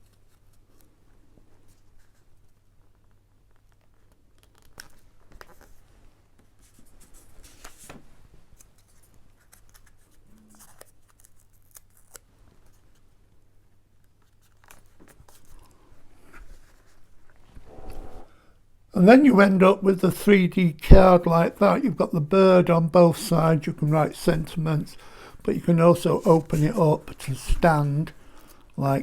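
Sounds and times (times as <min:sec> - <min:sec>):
paper rustling and clicks: 0:03.5 - 0:05.8, 0:08.6 - 0:12.8.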